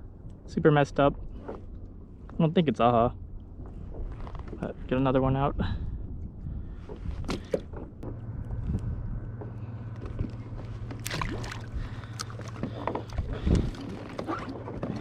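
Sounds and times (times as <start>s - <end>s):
steady low hum: 0.0s - 15.0s
water lapping against kayak hull: 6.4s - 15.0s.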